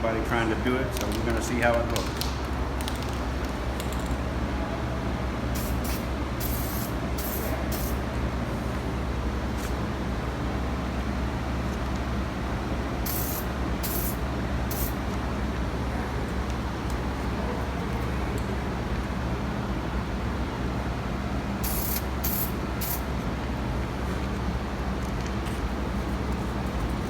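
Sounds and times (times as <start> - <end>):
spray can hissing: 5.6 - 8.0, 13.1 - 15.0, 21.6 - 23.0.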